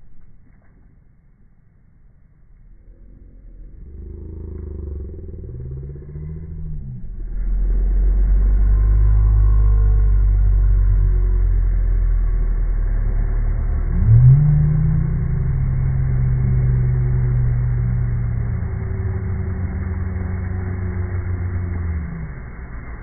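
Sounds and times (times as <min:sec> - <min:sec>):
deep geyser rumble: 0:03.6 - 0:23.0
tone sweeping upward: 0:05.0 - 0:23.0.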